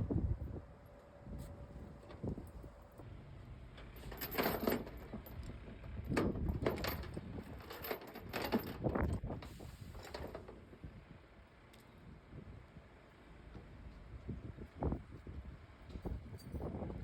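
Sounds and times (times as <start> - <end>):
metal chain rattling: 4.0 - 9.2.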